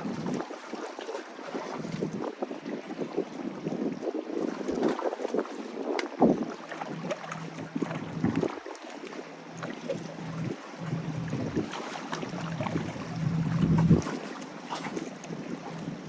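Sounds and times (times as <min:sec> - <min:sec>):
waves washing on jetty: 0:00.0 - 0:16.0
wind buffeting microphone: 0:00.0 - 0:16.0
steady low hum: 0:09.3 - 0:14.2.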